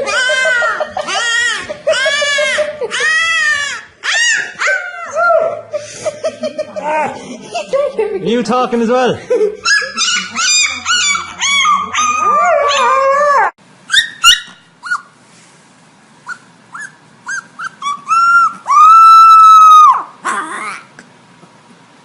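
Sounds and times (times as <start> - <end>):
dog yipping: 0.0 - 5.6, 9.6 - 15.2, 16.2 - 20.8
dog howling whines: 0.0 - 5.7, 10.5 - 14.4, 17.3 - 20.8.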